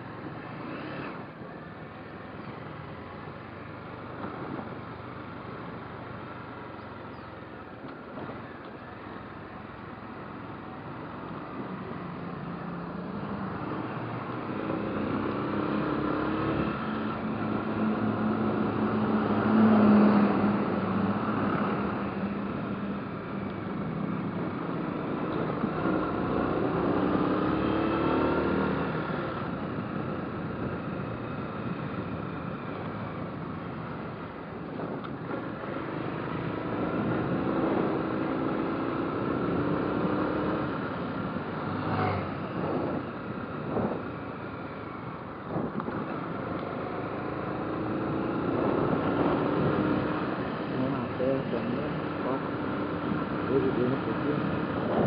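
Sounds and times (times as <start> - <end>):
motorcycle engine revving: 13.2 - 22.7, 24.2 - 31.8, 33.7 - 55.0.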